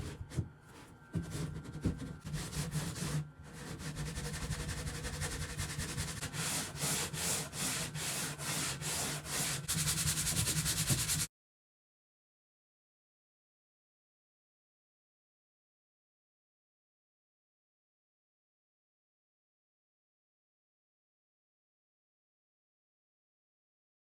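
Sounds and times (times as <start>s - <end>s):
hand sanding strokes: 1.2s - 11.3s.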